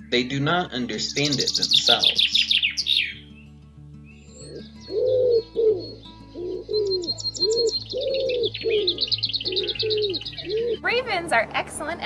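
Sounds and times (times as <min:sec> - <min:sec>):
high bird chirps and trill: 0:00.0 - 0:11.0
low cooing bird notes: 0:04.2 - 0:10.9.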